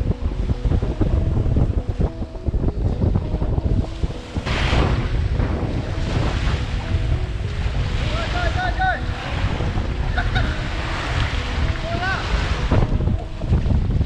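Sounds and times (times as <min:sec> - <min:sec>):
wind buffeting microphone: 0:00.0 - 0:14.0
waves washing up beach: 0:03.8 - 0:14.0.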